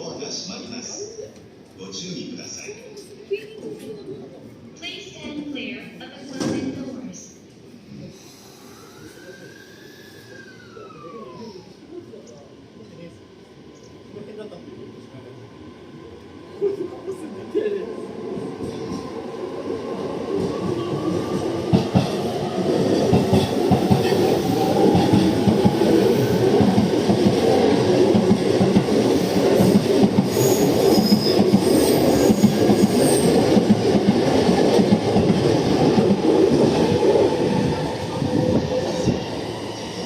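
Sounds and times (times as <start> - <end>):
train traction motors whining: 8.6 - 11.9
train wheels rumbling: 16.6 - 40.0.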